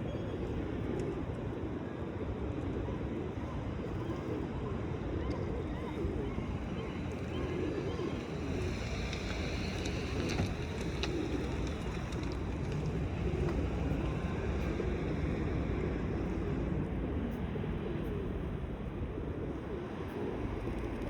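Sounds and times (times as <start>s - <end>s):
faint clicks: 8.7s - 15.4s.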